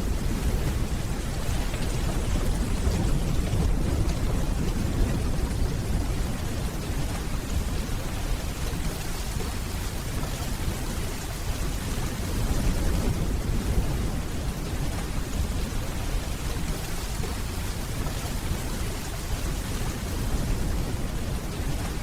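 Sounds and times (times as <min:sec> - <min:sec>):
distant thunder rumbling: 0:00.0 - 0:10.3
steady rainfall: 0:00.0 - 0:22.0.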